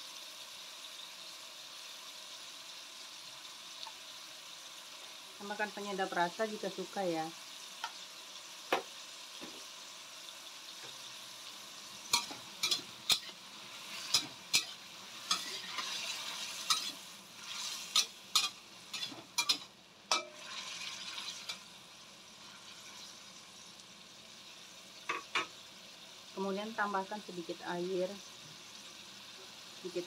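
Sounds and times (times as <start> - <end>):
tomatoes sizzling in oil: 0.0 - 30.0
metal spatula scraping wok: 12.0 - 21.6.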